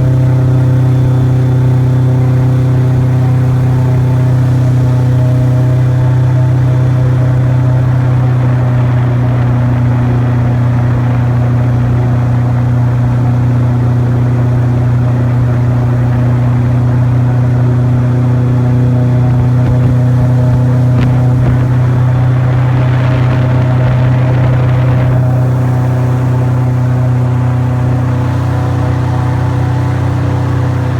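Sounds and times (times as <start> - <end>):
airboat engine drone: 0.0 - 30.9
rushing noise: 18.4 - 30.9.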